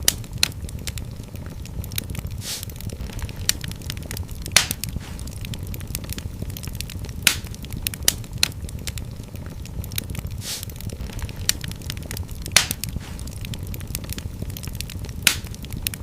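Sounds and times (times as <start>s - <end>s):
fire crackling: 0.0s - 16.0s
low rumble of flames: 0.0s - 16.0s
brief hiss: 2.4s - 2.7s, 10.4s - 10.7s.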